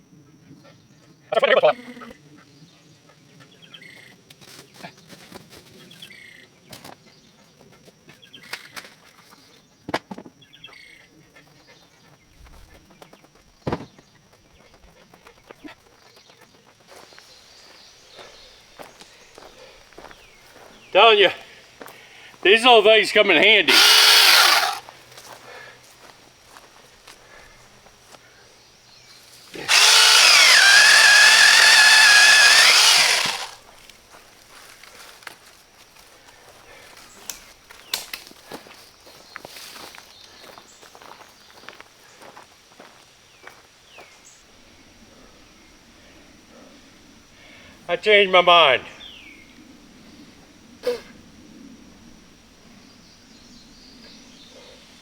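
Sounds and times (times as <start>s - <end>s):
songbird chirping: 15.4s - 21.2s
chainsaw cutting through branch: 23.7s - 24.8s, 29.6s - 33.6s.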